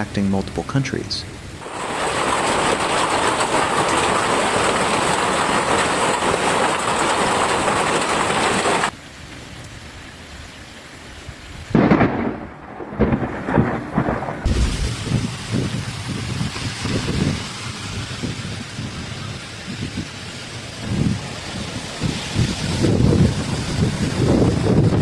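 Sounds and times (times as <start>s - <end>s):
heavy rain hissing: 0.0s - 9.2s, 9.8s - 25.0s
rain patter: 0.0s - 25.0s
thunder crash: 11.7s - 18.5s.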